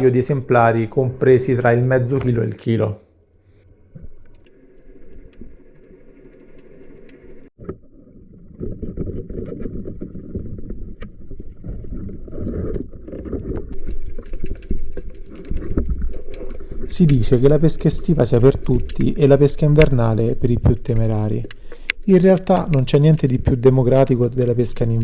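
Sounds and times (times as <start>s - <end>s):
underwater rushing crackle: 3.8s - 25.0s
faint clicks: 13.8s - 25.0s.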